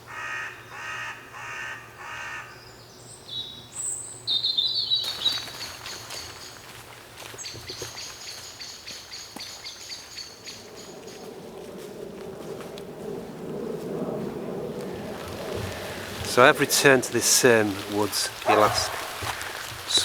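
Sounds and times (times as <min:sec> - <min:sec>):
crow cawing: 0:00.1 - 0:02.6, 0:17.5 - 0:20.0
woodland ambience: 0:00.1 - 0:20.0
small birds chirping: 0:02.6 - 0:11.3, 0:14.8 - 0:20.0.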